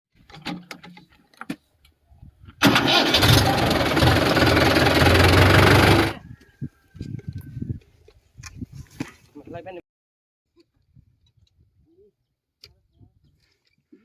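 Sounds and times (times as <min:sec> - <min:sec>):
tractor engine rumbling: 0:02.6 - 0:06.2.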